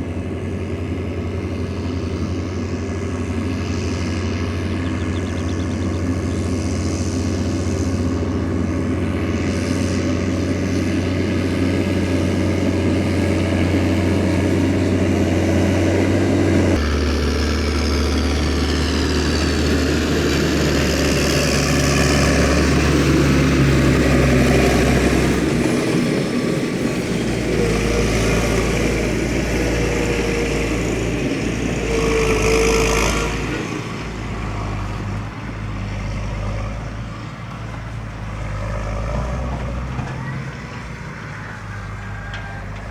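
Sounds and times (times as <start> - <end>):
diesel farm machinery running: 0.0 - 42.9.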